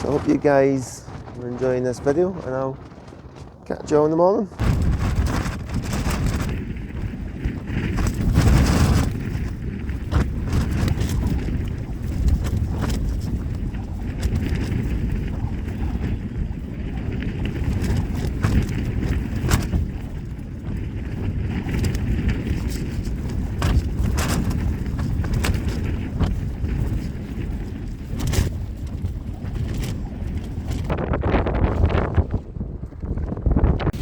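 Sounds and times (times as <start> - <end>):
wind rumbling on microphone: 0.0 - 34.0
tent flysheet snapping: 4.6 - 14.8, 17.5 - 32.0.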